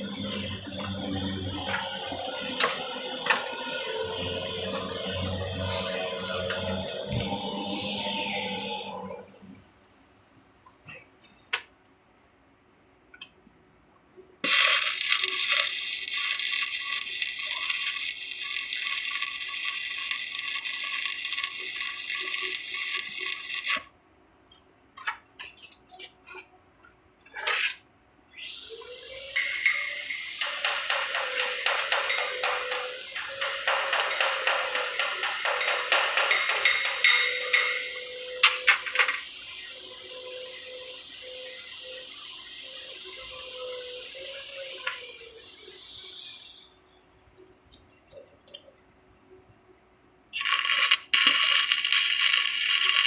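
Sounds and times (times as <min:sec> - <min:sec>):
welding arc crackling: 0:00.0 - 0:08.7, 0:14.4 - 0:23.9, 0:29.4 - 0:42.1, 0:50.3 - 0:53.0.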